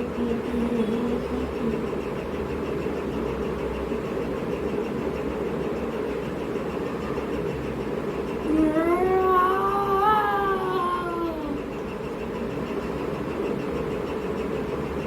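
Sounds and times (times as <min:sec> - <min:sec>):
low background hum: 0:00.0 - 0:15.0
long wavering pitched call: 0:08.5 - 0:11.7.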